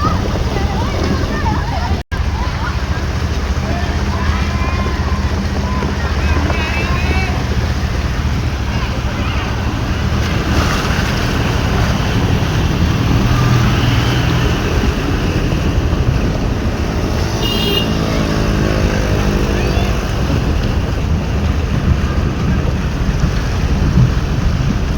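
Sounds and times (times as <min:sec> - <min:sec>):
road traffic: 0:00.0 - 0:24.9
vehicle engine passing: 0:00.0 - 0:24.9
wind noise on microphone: 0:00.0 - 0:24.9
short beeping horn: 0:17.4 - 0:18.0.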